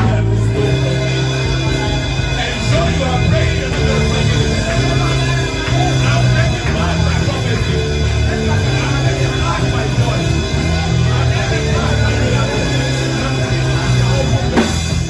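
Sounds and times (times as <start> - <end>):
loud band music: 0.0 - 15.0.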